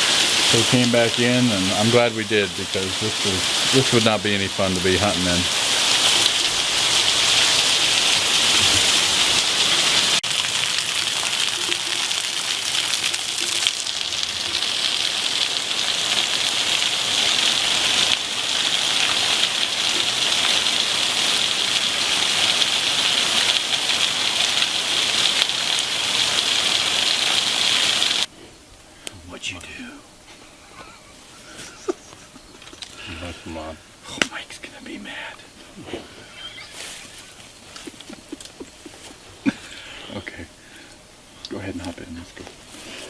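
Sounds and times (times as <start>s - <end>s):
heavy rain pouring: 0.0s - 28.3s.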